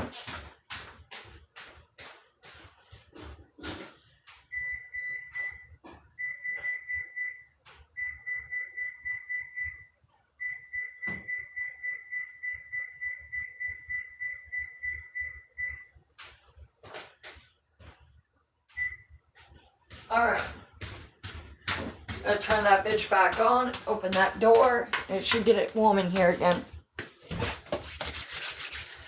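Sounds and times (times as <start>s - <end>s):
rapid electronic beeps: 10.5s - 15.9s.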